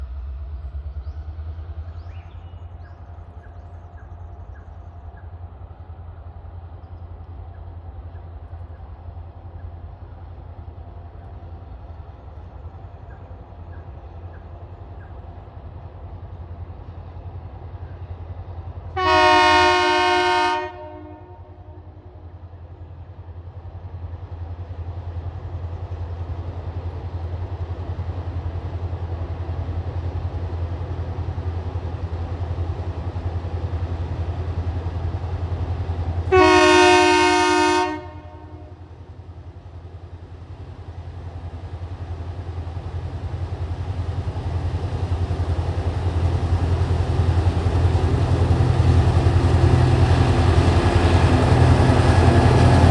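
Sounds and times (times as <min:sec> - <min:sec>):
locomotive horn blasts: 0:19.0 - 0:21.9, 0:36.3 - 0:38.8.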